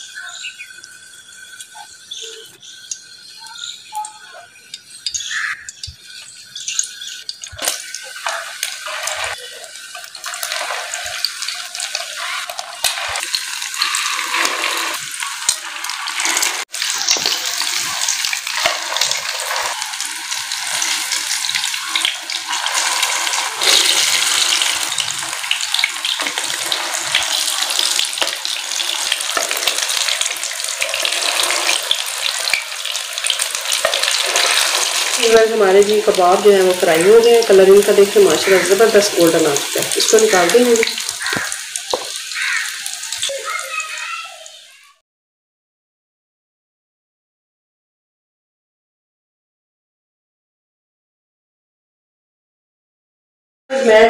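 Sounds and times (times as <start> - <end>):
kababs sizzling in a pan: 0.0 - 44.9.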